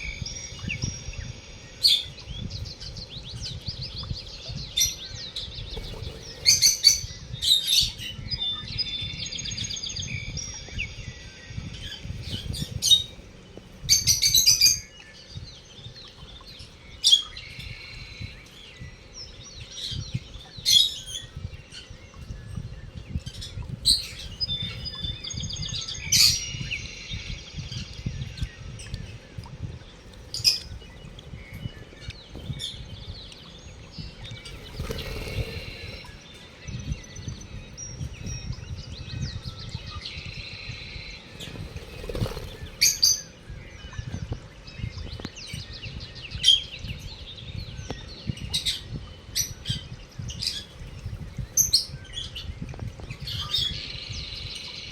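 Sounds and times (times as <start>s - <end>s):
lovebirds chirping: 0.0s - 54.9s
buzzy bird calls: 4.4s - 8.0s, 34.0s - 36.9s, 39.4s - 44.3s.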